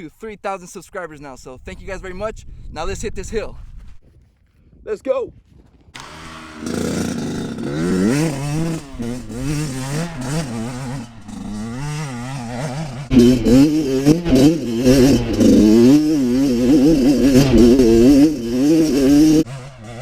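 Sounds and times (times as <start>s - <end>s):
dirt bike engine revving: 6.0s - 20.0s.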